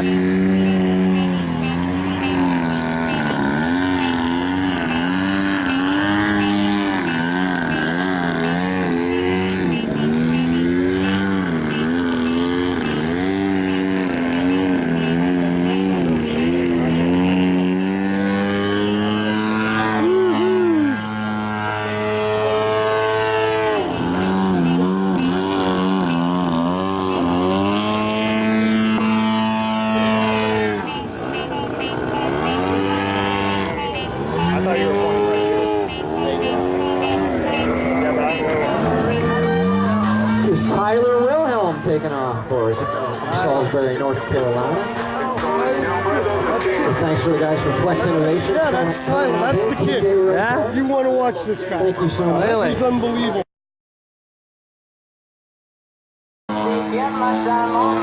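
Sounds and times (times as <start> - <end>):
model airplane engine: 56.5 - 58.0.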